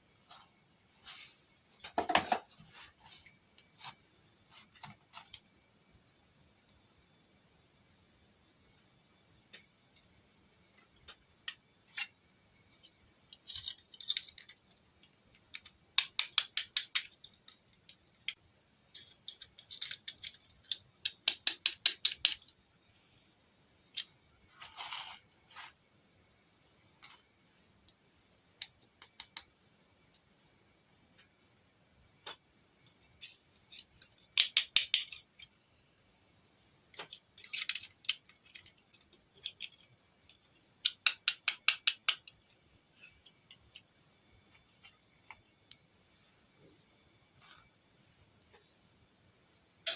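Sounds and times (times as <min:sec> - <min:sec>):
plastic toy parts clicking: 0:12.8 - 0:22.6, 0:23.9 - 0:25.2, 0:28.6 - 0:29.5, 0:33.1 - 0:35.6, 0:36.9 - 0:43.9.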